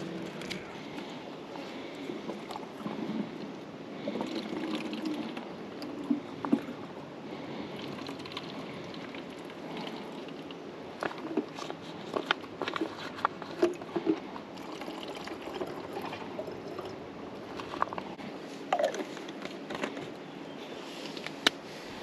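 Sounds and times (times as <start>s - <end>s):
liquid pouring and trickling: 2.3s - 6.9s, 7.7s - 11.5s, 13.5s - 18.1s.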